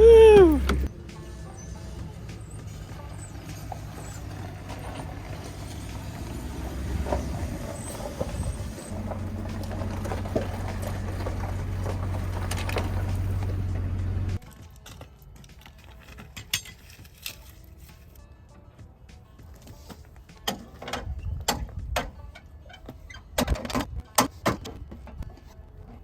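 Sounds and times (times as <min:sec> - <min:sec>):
truck engine idling: 0:00.0 - 0:14.4.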